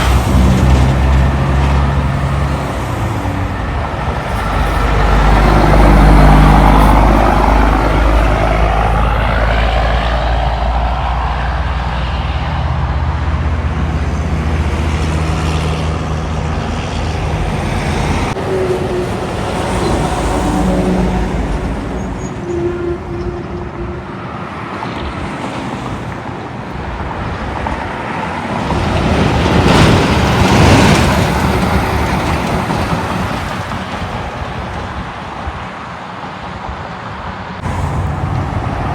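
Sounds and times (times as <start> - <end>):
diesel engine humming: 0.0 - 24.4, 37.6 - 38.9
vehicle passing close: 37.6 - 38.9.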